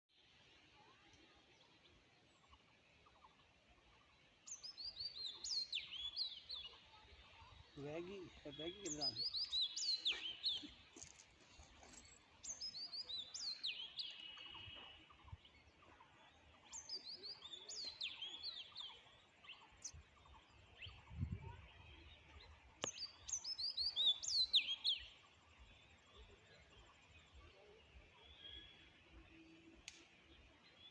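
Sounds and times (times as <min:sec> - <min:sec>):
songbird chirping: 0:00.1 - 0:30.9
sharp click: 0:29.8 - 0:30.1.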